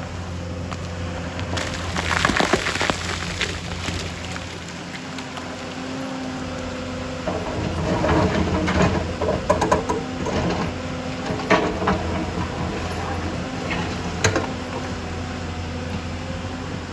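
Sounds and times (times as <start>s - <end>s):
excavator engine running: 0.0s - 16.9s
scraping and clanking: 6.6s - 16.1s.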